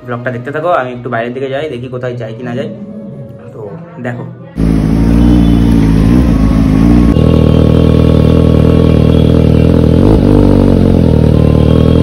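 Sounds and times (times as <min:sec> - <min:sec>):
motorcycle engine revving: 0:04.6 - 0:12.0.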